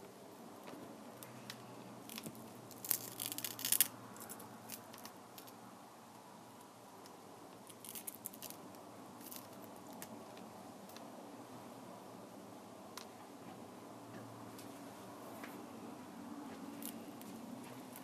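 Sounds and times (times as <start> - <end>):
crisp clicks and scratches: 0.6 - 5.6, 7.0 - 11.1, 16.5 - 18.0.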